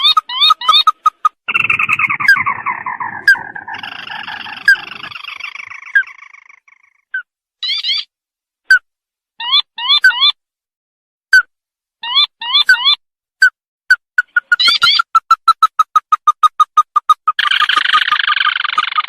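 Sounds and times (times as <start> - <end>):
bird chattering trill: 0.0 - 8.1, 14.2 - 19.0
higher bird trill: 0.0 - 8.1, 17.4 - 19.0
rising bird notes: 1.5 - 6.8.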